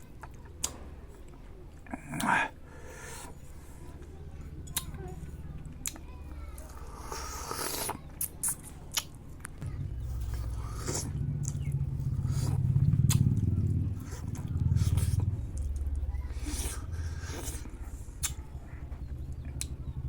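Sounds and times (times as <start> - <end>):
wet chewing smacks and clicks: 4.6 - 9.6, 10.2 - 20.0
low droning hum: 9.2 - 20.0.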